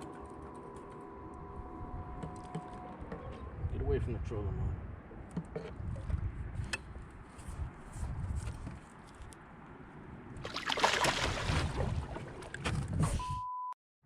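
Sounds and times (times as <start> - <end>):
fish splashing at surface: 10.4 - 12.5.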